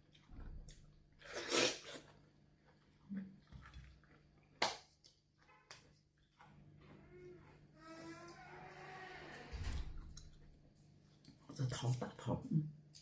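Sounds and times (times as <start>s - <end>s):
sneeze or sharp breath: 1.3s - 1.9s.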